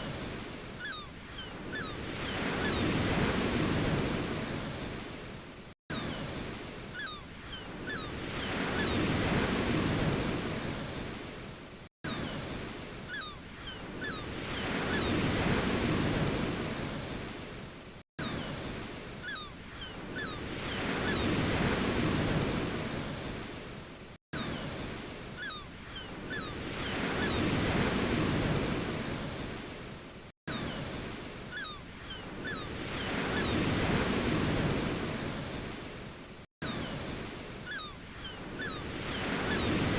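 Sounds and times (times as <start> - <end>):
ocean waves washing in: 0.0 - 39.9.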